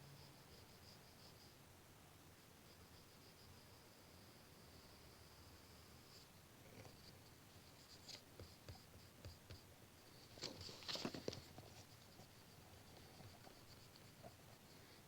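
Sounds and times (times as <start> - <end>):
pencil scratching on paper: 6.9 - 9.7, 10.7 - 15.0.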